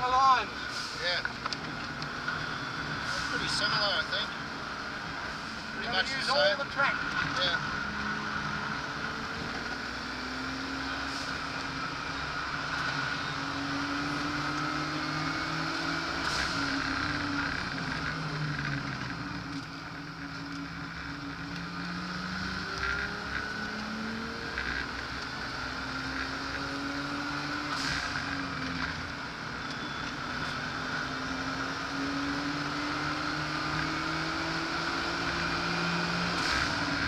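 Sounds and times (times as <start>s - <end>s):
car engine revving: 0.0s - 37.0s
road and wind noise: 0.0s - 37.0s.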